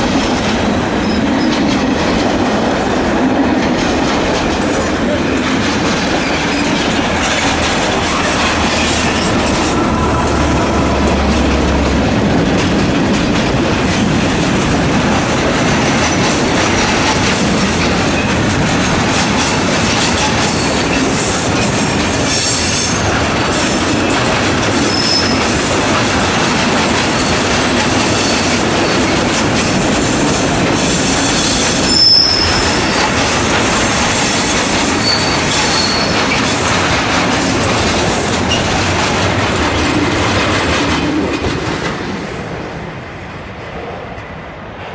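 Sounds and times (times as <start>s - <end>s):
freight train rumbling past: 0.0s - 44.9s
train wheel squeals: 6.0s - 11.6s, 19.2s - 23.7s, 24.7s - 25.7s, 27.0s - 29.8s, 30.8s - 36.8s.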